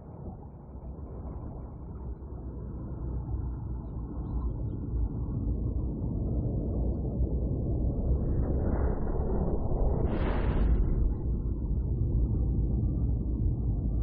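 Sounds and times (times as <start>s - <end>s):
deep steady rumble: 4.9s - 14.0s.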